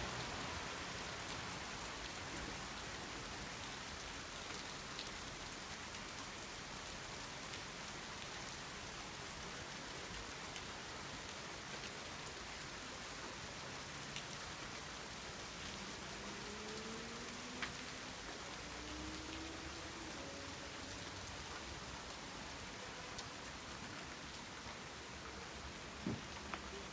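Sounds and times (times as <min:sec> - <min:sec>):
steady rain falling: 0:00.0 - 0:26.9
raindrops ticking: 0:16.4 - 0:19.8.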